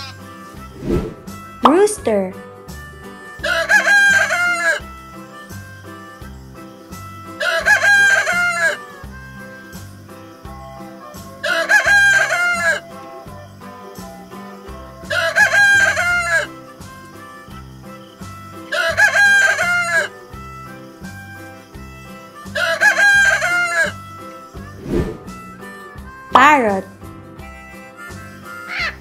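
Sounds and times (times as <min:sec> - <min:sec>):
rooster crowing: 0:03.4 - 0:04.8, 0:07.4 - 0:08.8, 0:11.4 - 0:12.8, 0:18.7 - 0:20.1, 0:22.6 - 0:24.0.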